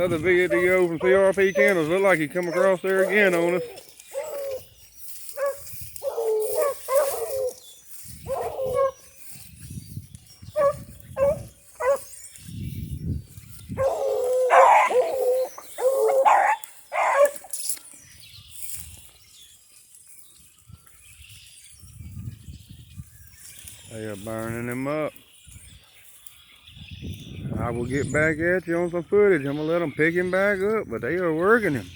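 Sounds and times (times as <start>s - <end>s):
hounds baying: 0.0s - 9.4s, 10.4s - 12.4s, 13.5s - 17.7s.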